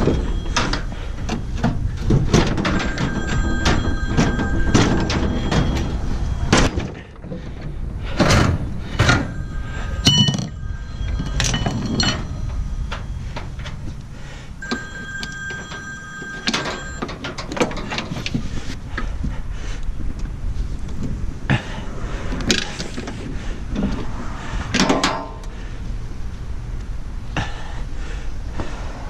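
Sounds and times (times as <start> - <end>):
metal clanks and knocks: 0.0 - 14.1, 24.8 - 25.5
steady low rumble: 0.0 - 17.0, 17.7 - 29.0.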